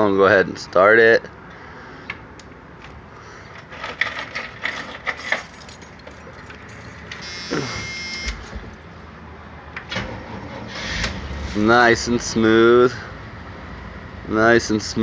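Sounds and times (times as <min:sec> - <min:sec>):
bus engine idling: 0:06.3 - 0:15.0.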